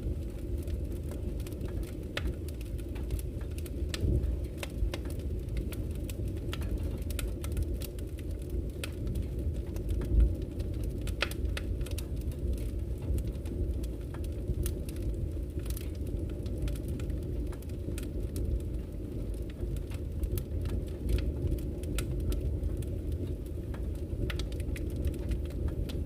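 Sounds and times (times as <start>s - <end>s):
logs crackling and popping: 0.0s - 26.0s
low rumble of flames: 0.0s - 26.0s.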